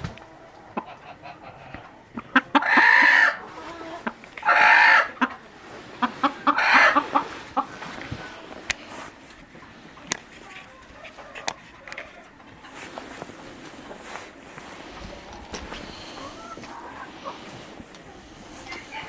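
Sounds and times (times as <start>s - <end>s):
chickens calling: 0.0s - 19.0s
clicks and scratching: 7.1s - 19.0s.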